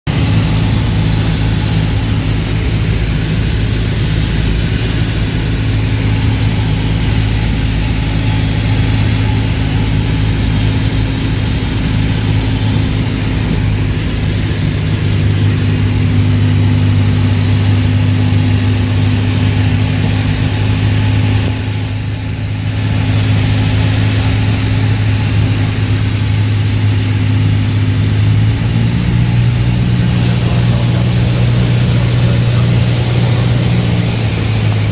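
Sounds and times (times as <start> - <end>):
light aircraft engine drone: 0.1 - 34.9
rushing air hiss: 12.0 - 26.0.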